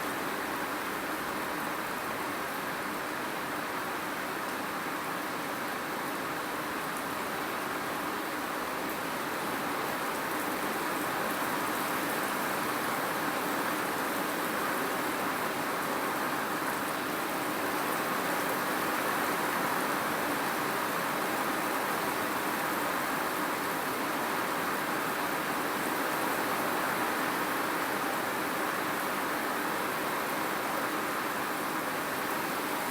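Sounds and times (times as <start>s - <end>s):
steady rain hiss: 0.0s - 32.9s.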